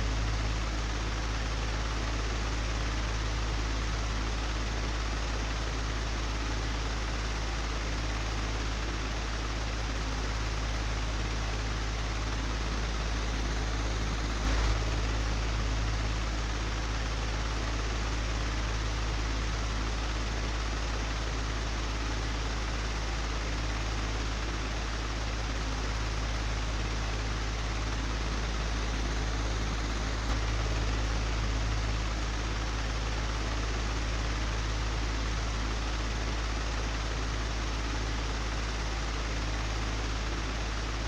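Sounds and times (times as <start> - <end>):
electric fan running: 11.0 - 41.0.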